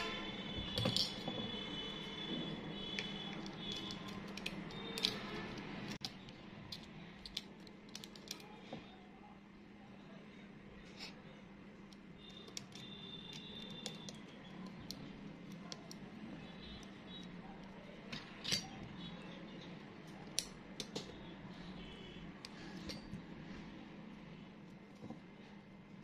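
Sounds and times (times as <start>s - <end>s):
small parts clicking: 2.8s - 8.5s, 11.9s - 19.0s, 20.0s - 21.2s.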